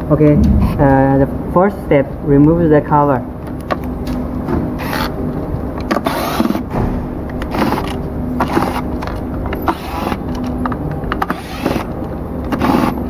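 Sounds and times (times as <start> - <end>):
steady low rumble: 0.0 - 3.5, 6.7 - 11.2.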